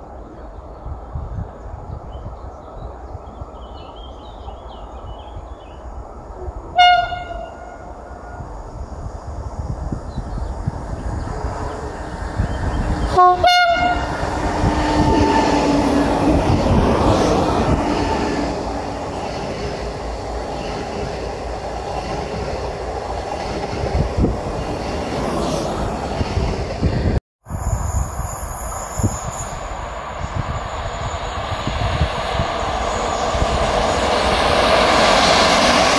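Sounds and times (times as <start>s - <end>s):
train horn blast: 6.7s - 8.4s, 13.0s - 16.0s
train running rumble: 8.6s - 35.9s.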